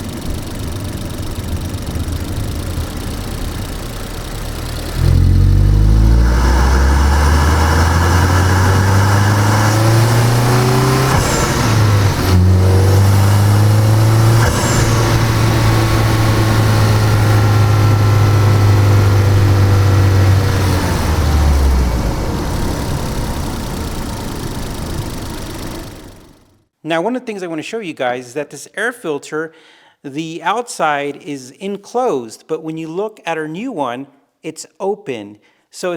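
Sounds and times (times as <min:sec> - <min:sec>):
car engine revving: 0:00.0 - 0:26.5.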